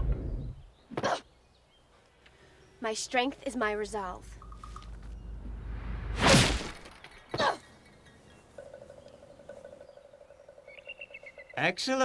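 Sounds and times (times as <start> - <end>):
rushing sound: 5.4 - 7.1
loud smash with shattering: 6.0 - 7.1.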